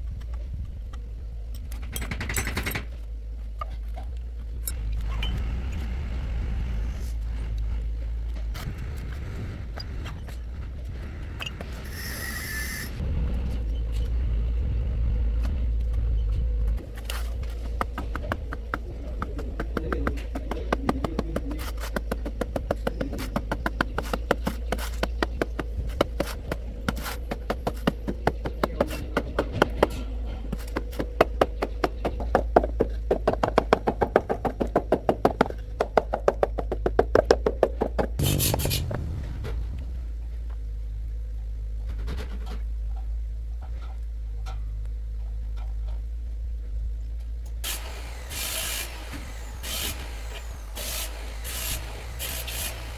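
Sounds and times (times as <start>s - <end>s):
steady low hum: 3.0s - 52.9s
rapid even knocking: 16.8s - 39.1s.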